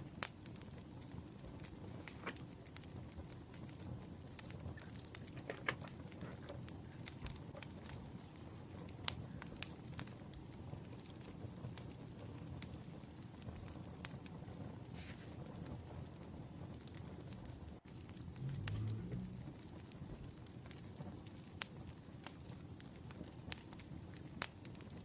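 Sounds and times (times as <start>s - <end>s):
wood fire crackling: 0.0s - 25.0s
low steady rumble: 17.6s - 20.3s.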